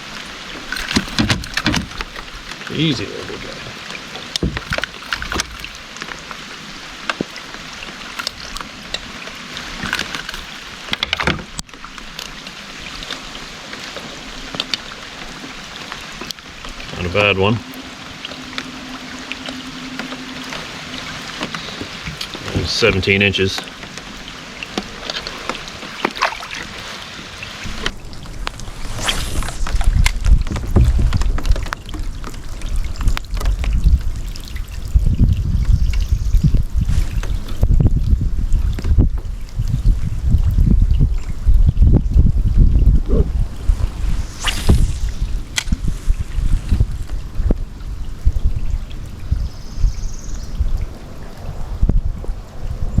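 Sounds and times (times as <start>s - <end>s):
rain hissing on water: 0.0s - 40.3s, 42.3s - 53.0s
knocks against kayak hull: 4.4s - 5.6s
low rumbling: 14.4s - 26.0s, 27.6s - 48.6s.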